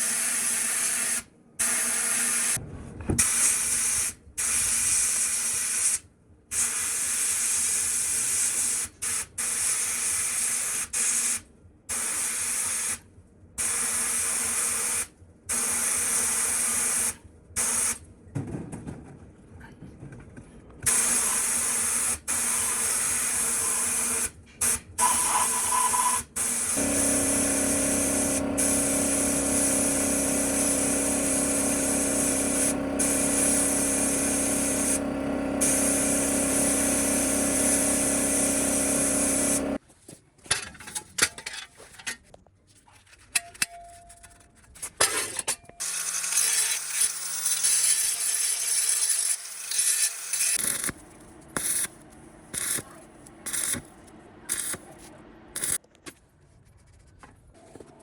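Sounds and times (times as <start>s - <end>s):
electric power tool running: 26.6s - 39.8s, 45.8s - 51.9s.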